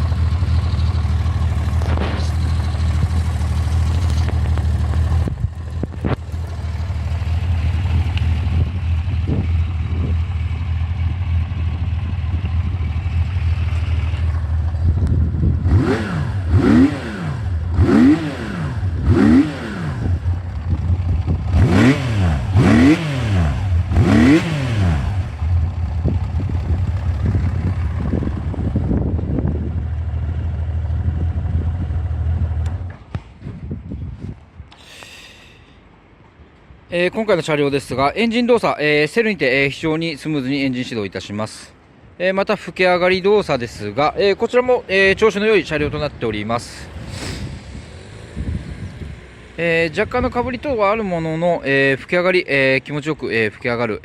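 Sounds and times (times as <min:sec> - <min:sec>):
motorcycle engine idling and revving: 0:00.0 - 0:34.2, 0:44.6 - 0:51.8.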